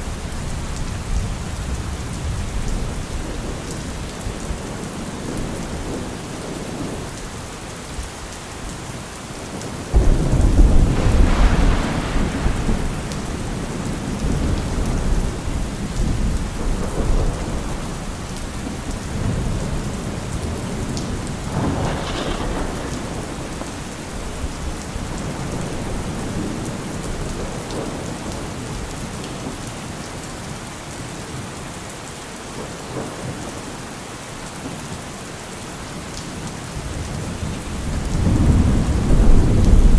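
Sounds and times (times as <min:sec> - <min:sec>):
heavy rain: 0:00.0 - 0:39.9
thunder rumbling: 0:09.6 - 0:28.9, 0:36.8 - 0:39.9.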